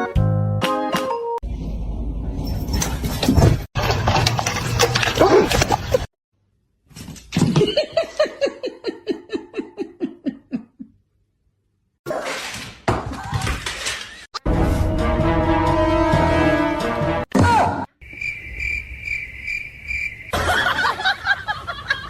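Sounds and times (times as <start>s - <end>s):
person laughing: 7.6s - 11.0s, 20.4s - 22.0s.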